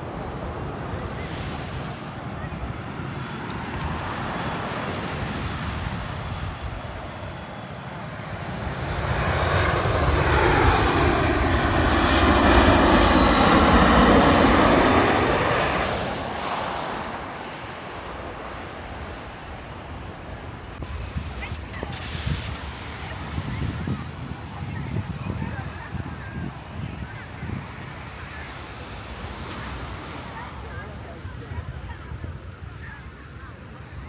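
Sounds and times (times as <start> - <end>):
jet airliner flying overhead: 0.0 - 34.0.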